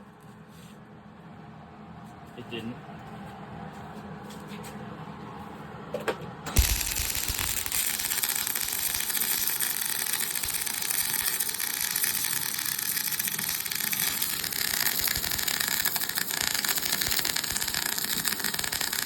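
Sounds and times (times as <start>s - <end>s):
welding arc crackling hiss: 6.5s - 19.0s.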